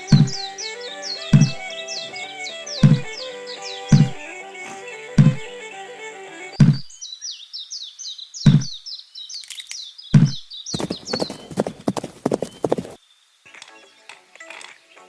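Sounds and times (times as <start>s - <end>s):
high quick falling chirps: 0.0s - 6.8s
heavy knocks: 1.4s - 1.7s, 2.8s - 3.2s, 3.9s - 4.2s.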